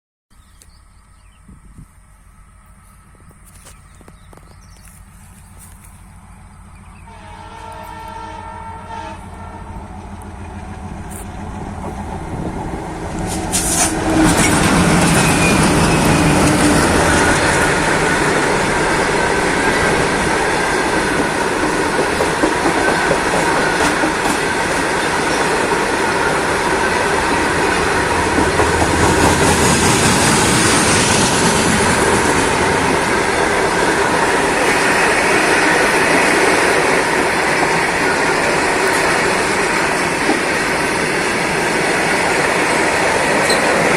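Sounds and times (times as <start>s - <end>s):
train rushing past on rails: 1.2s - 43.9s
train horn: 7.0s - 11.2s.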